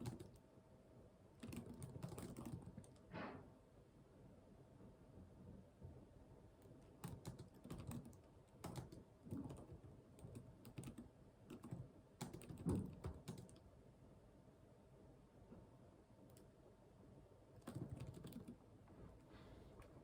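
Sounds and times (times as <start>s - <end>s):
computer keyboard typing: 0.0s - 0.4s, 1.4s - 3.0s, 6.9s - 13.6s, 17.6s - 18.6s.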